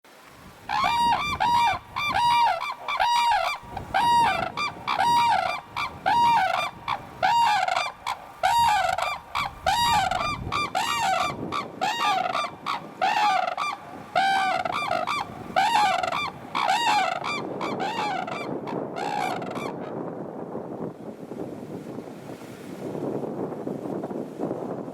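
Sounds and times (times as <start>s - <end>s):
cranes calling in duet: 0.7s - 19.8s.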